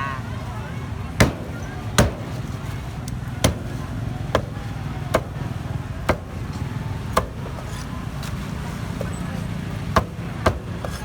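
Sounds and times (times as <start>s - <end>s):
cleaver chopping on cutting board: 1.2s - 2.5s, 3.4s - 5.5s, 6.1s - 6.5s, 7.1s - 7.9s, 10.0s - 11.0s.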